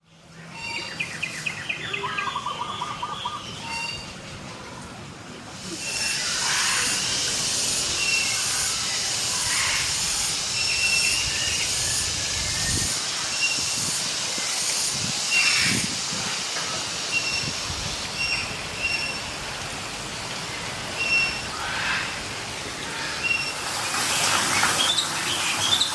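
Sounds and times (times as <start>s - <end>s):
insects hissing: 5.5s - 25.9s.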